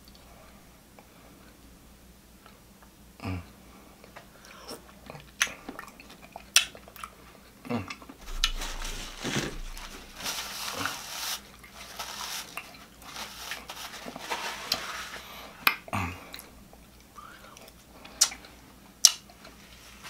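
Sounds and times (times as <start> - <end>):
paper napkin rustling: 8.2 - 15.6.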